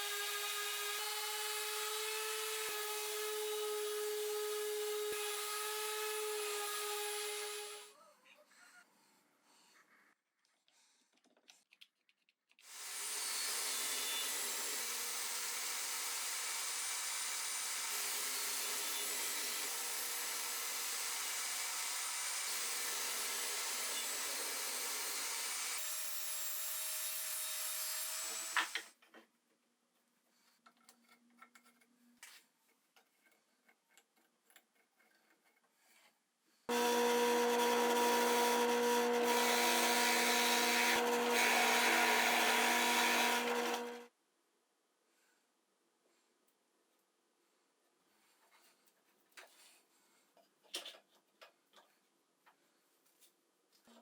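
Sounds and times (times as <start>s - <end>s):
power saw cutting wood: 0.0s - 7.9s, 12.7s - 28.9s, 36.7s - 44.1s.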